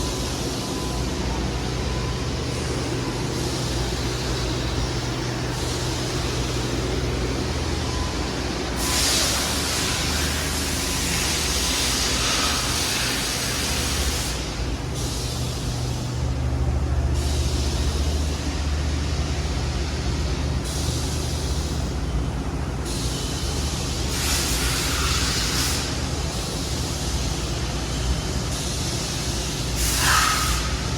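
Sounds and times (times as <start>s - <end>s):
machine hissing bursts: 2.2s - 16.3s, 22.8s - 30.9s.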